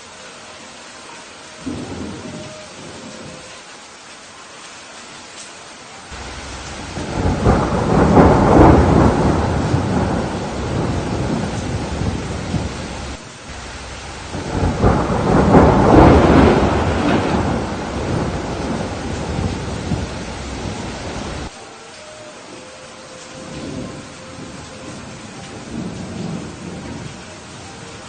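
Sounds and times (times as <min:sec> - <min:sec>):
steady rain: 0:00.0 - 0:28.0
rolling thunder: 0:01.6 - 0:03.5, 0:06.1 - 0:21.5, 0:23.4 - 0:27.3.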